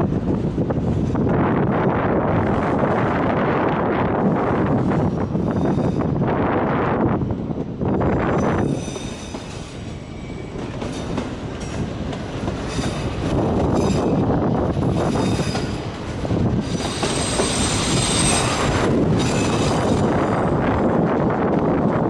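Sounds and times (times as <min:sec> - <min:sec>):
wheels squealing: 0:16.6 - 0:20.5.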